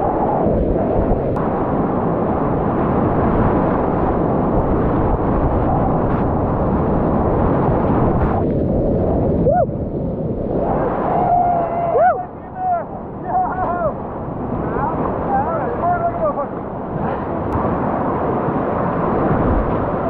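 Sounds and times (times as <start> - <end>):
whitewater rapids rushing: 10.5 - 20.0.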